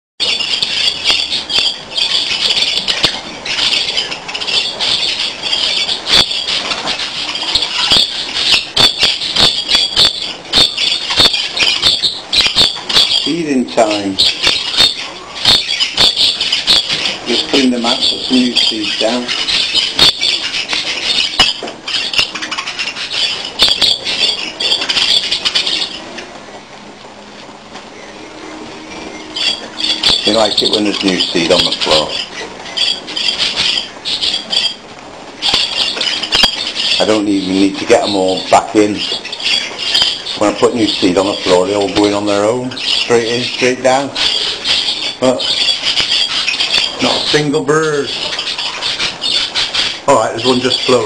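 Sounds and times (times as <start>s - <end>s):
budgerigars chattering and squawking: 0.2s - 26.8s, 27.8s - 51.0s.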